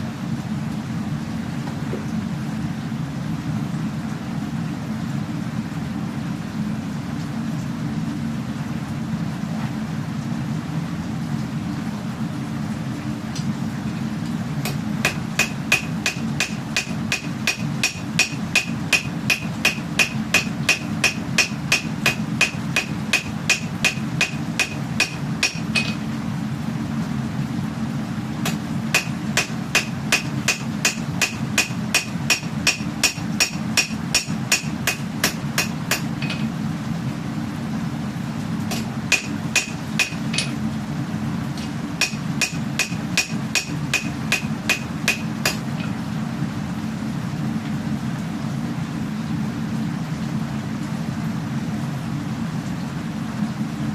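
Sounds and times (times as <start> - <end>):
hammer striking steel: 14.6 - 26.0, 28.5 - 36.5, 38.7 - 40.6, 42.0 - 46.0.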